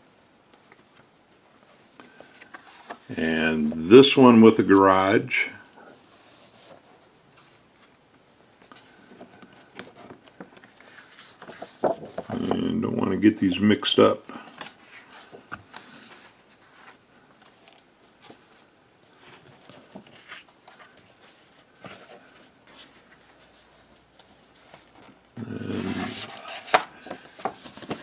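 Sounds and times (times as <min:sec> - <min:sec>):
paper sheets rustling: 0:09.9 - 0:12.6, 0:14.6 - 0:28.0
low voice-like sound: 0:25.4 - 0:26.4.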